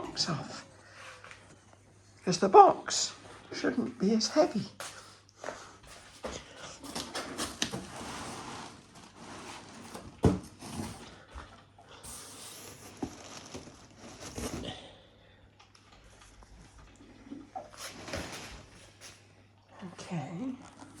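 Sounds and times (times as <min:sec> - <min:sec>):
cardboard box rustling and scraping: 0:06.8 - 0:11.3, 0:12.1 - 0:14.8.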